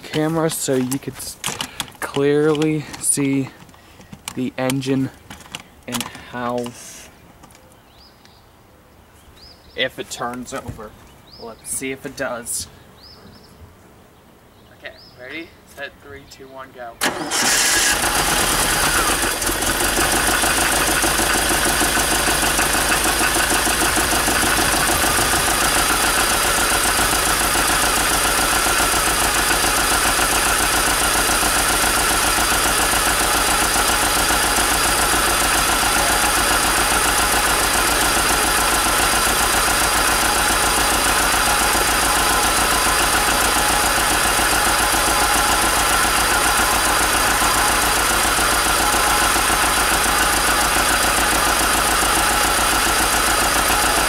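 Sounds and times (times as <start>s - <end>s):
car engine idling: 17.0s - 54.0s.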